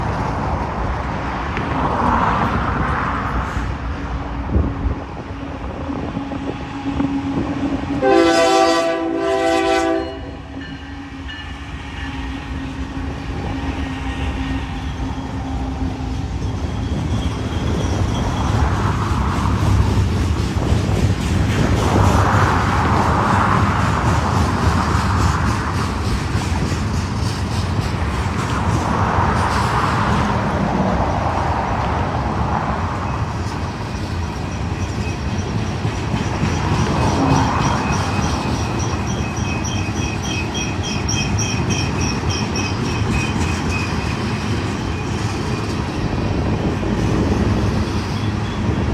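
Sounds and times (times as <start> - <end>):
train engine and wheels rumbling: 0.0 - 48.9
locomotive horn: 6.9 - 10.8.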